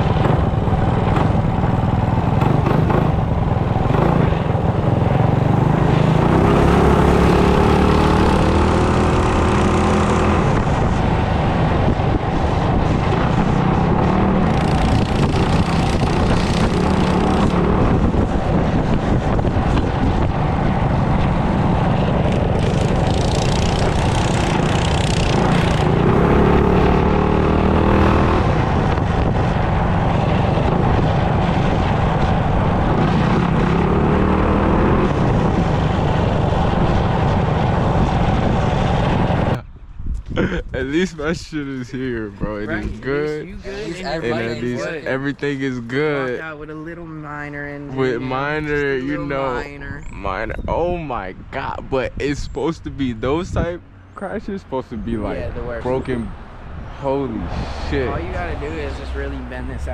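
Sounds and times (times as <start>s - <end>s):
wind noise: 0.0s - 59.9s
mini bike engine running: 14.4s - 17.7s, 22.5s - 26.1s.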